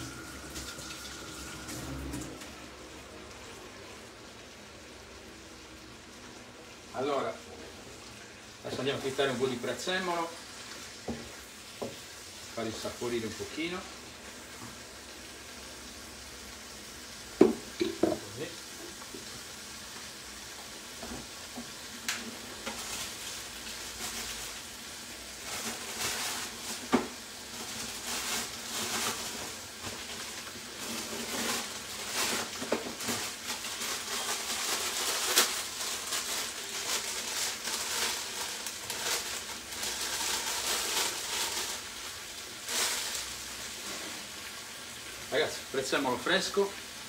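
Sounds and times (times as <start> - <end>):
meat sizzling in a pan: 0.0 - 47.0
crackles and pops: 22.0 - 23.3, 29.9 - 43.4.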